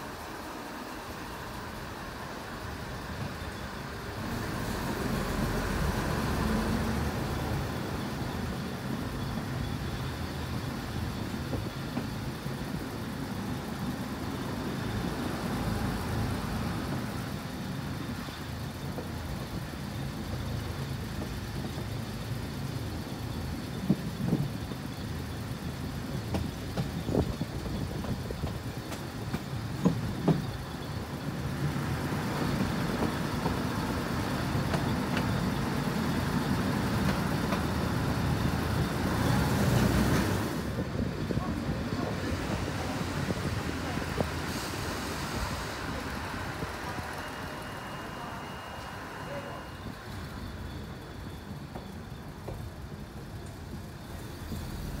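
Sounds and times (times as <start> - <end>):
diesel railcar engine running: 0.0 - 55.0.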